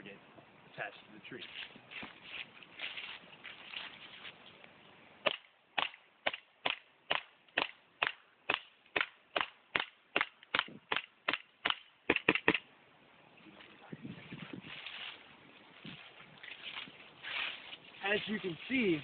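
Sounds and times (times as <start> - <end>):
airsoft gun firing: 5.3 - 12.6.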